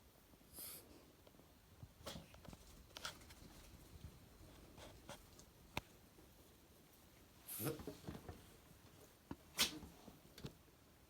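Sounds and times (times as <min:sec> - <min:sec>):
dog reverse sneezing: 0:09.5 - 0:09.8.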